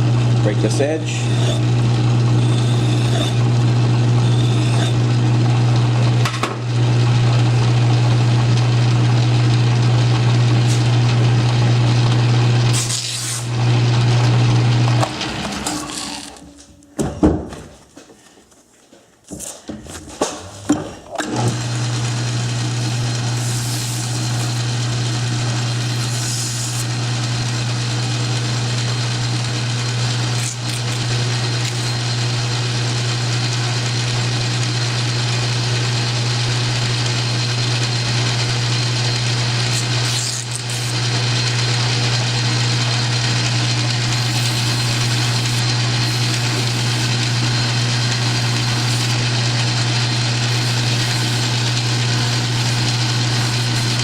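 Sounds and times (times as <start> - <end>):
metal lathe motor hum: 0.0 - 16.4, 21.3 - 54.0.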